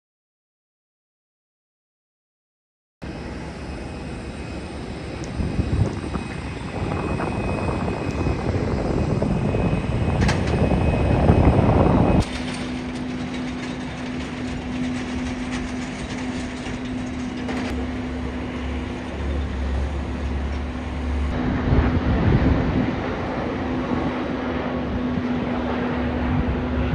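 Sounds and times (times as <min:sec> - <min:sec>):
jet airliner engine noise: 0:03.0 - 0:26.9
steady jet engine hum: 0:03.0 - 0:26.9.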